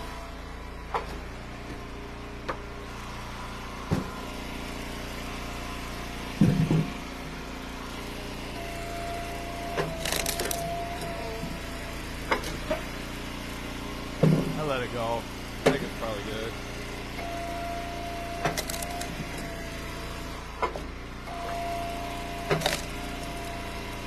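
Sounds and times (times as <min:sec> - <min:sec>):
log splitter engine running: 0:00.0 - 0:24.0
heavy thump: 0:03.9 - 0:04.2, 0:06.4 - 0:07.0, 0:14.2 - 0:14.6.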